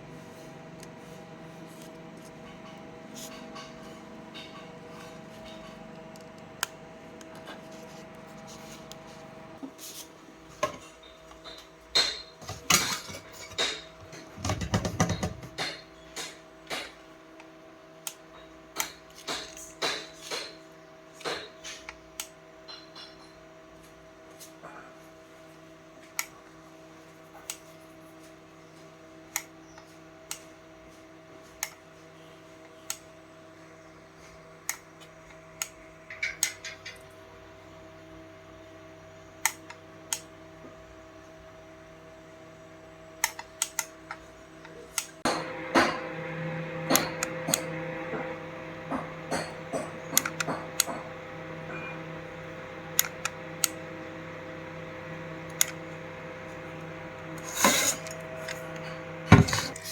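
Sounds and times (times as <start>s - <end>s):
speaker hum: 0.0s - 15.8s, 44.4s - 59.9s.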